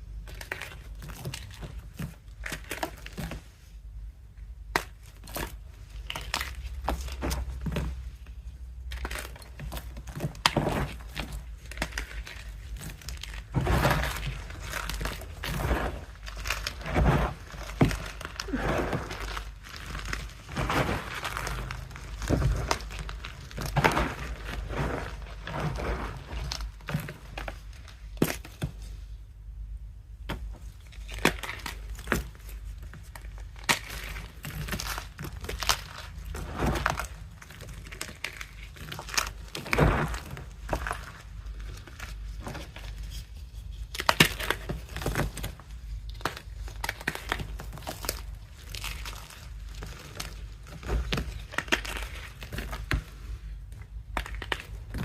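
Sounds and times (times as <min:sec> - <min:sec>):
chalk blocks being crushed: 0:00.0 - 0:03.6, 0:04.6 - 0:29.2, 0:30.2 - 0:55.0.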